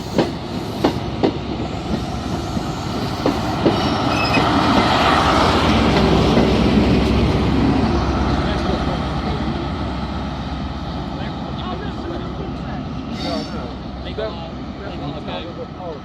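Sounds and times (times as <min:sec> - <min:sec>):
train running noise: 0:00.0 - 0:16.0
high wheel squeal: 0:03.1 - 0:04.5.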